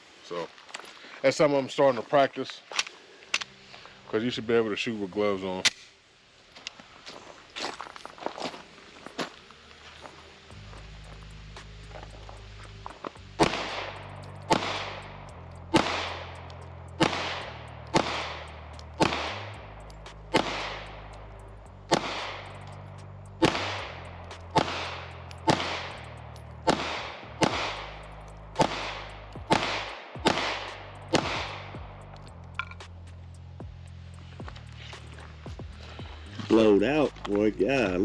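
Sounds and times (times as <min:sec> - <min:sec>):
low background music: 0:01.3 - 0:05.8, 0:07.6 - 0:38.0
pistol shots echoing: 0:13.4 - 0:21.3, 0:21.9 - 0:32.0.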